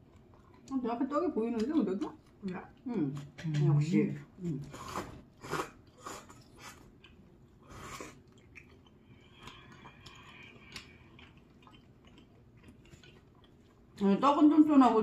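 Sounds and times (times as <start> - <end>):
person chewing noodles: 0.0 - 0.8, 4.6 - 14.0
soft mouth clicks: 8.4 - 12.3.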